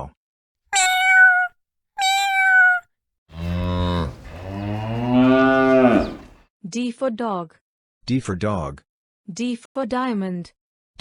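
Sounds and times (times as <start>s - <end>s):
cat meowing: 0.8s - 2.8s
cow mooing: 2.3s - 6.4s.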